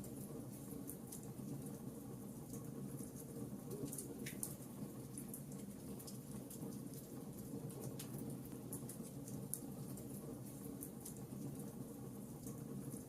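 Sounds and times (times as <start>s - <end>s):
fire crackling and popping: 2.6s - 12.7s.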